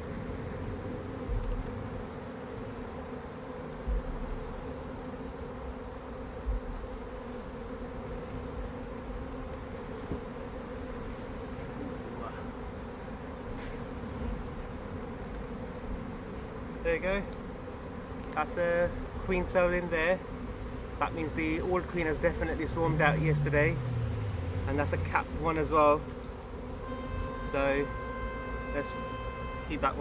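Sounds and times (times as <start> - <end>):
honeybees buzzing: 0.0 - 30.0.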